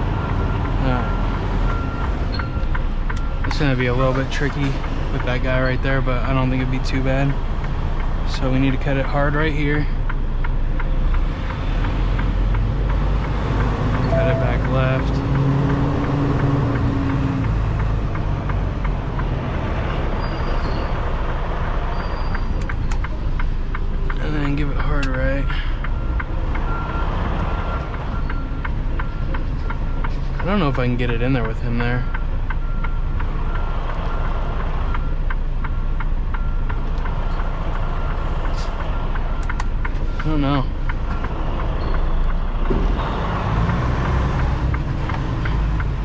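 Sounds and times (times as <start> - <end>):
diesel truck engine rumbling: 0.0 - 46.0
reversing beep: 0.2 - 4.3, 14.0 - 15.8, 24.3 - 35.3, 36.4 - 42.4
light regular ticking: 0.2 - 46.0
sharp clicks: 20.6 - 26.7, 27.4 - 46.0.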